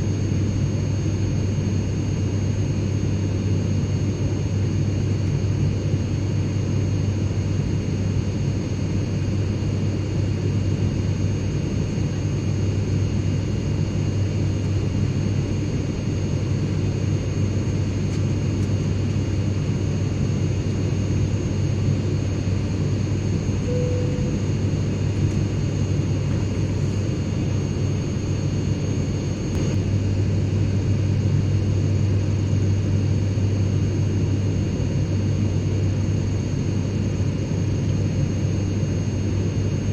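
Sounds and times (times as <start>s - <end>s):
airplane cabin drone: 0.0s - 39.9s
faint high whine: 20.0s - 34.4s.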